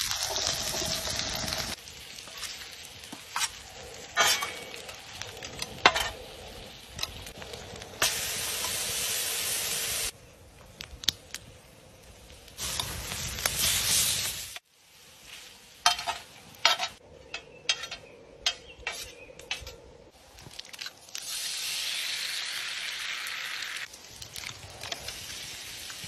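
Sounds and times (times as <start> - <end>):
food sizzling on a griddle: 0.0 - 10.2, 12.4 - 16.7, 21.2 - 26.0.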